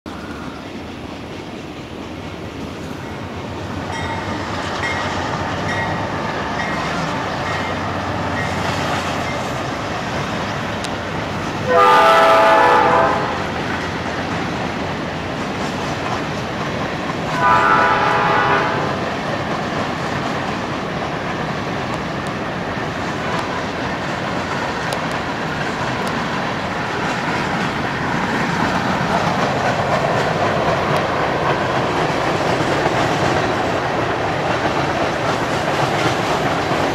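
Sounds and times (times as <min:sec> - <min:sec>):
freight train rumbling: 0:00.1 - 0:36.9
locomotive horn blasts: 0:11.6 - 0:13.5, 0:17.3 - 0:19.0.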